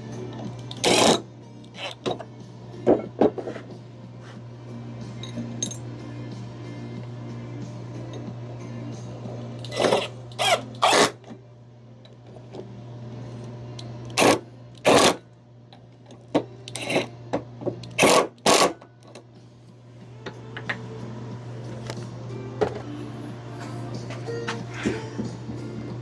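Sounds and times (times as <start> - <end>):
power drill driving screws: 0.7 - 1.2, 9.7 - 11.2, 14.2 - 15.2, 18.0 - 18.8.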